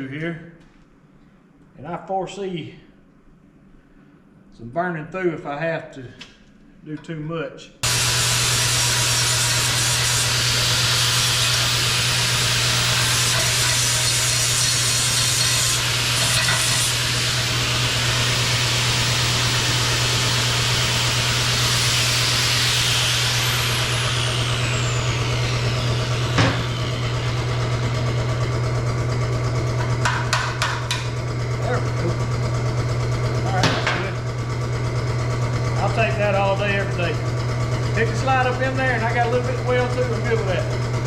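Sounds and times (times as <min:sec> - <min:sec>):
low electrical buzz: 0:00.0 - 0:41.0
arc welding sizzle: 0:07.8 - 0:30.2.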